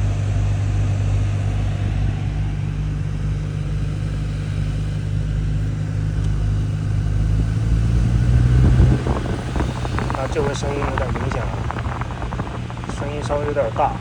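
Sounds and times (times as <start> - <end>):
heater blower fan humming: 0.0 - 14.0.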